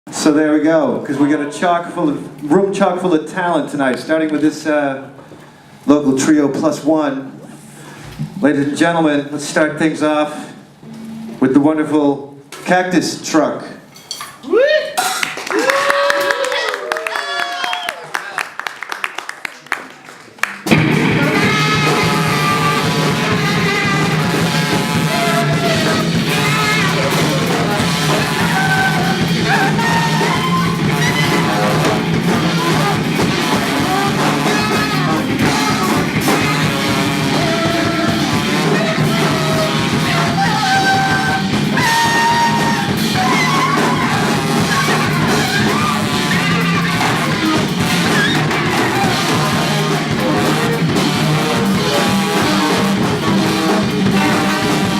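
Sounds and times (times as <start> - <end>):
drum kit: 20.6 - 54.9
tenor saxophone wailing: 20.7 - 54.9
trombone: 20.7 - 54.9.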